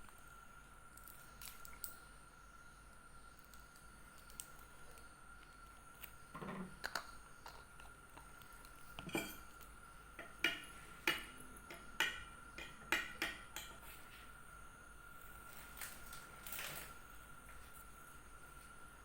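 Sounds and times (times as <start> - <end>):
dishes and utensils clinking: 9.0 - 9.6
dishes scraping: 9.0 - 9.6.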